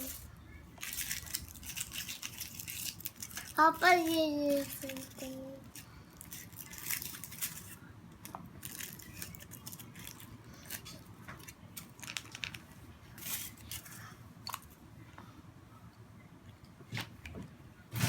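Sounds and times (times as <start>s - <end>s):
foil wrapper crinkling: 0.0s - 7.8s, 8.6s - 14.0s
crackling handling noises: 0.0s - 15.3s.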